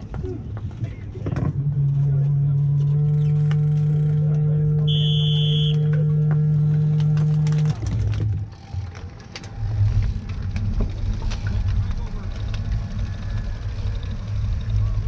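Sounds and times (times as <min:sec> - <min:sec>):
scattered clicks and rumble: 0:00.0 - 0:15.0
loud steady low hum: 0:01.4 - 0:15.0
referee's whistle: 0:04.9 - 0:05.9.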